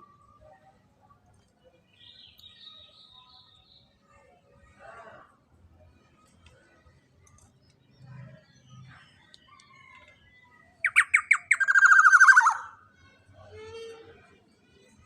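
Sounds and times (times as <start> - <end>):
bird harsh calls and squawk: 10.8 - 12.8.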